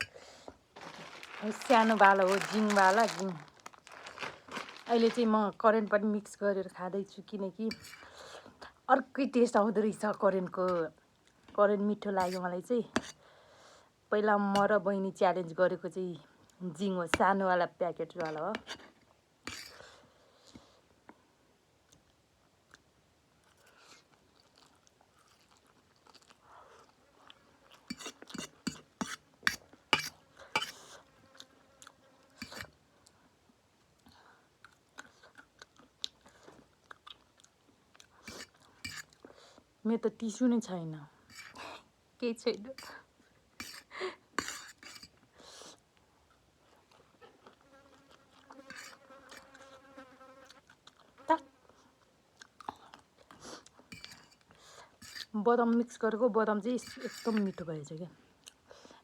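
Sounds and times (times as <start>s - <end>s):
quiet chewing: 0.4s - 5.2s, 21.9s - 33.3s, 34.0s - 39.7s, 41.3s - 41.8s, 42.7s - 49.8s, 50.4s - 55.3s, 58.3s - 59.0s
crunchy bites and smacks: 0.8s - 5.2s.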